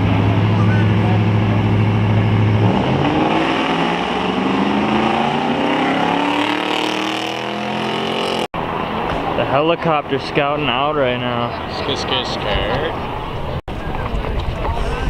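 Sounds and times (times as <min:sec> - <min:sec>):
car engine accelerating: 0:00.0 - 0:09.4.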